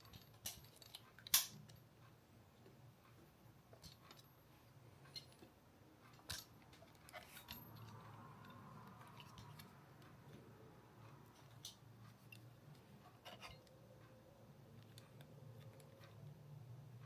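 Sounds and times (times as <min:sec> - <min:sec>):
small hard parts clicking: 0:00.0 - 0:01.9.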